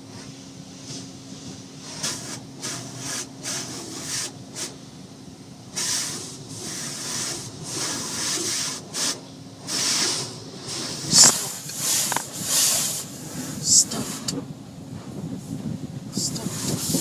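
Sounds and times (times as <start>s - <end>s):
steady low hum: 0.0s - 17.0s
high-pressure water jets spraying: 1.8s - 4.8s, 5.7s - 14.4s, 16.2s - 17.0s.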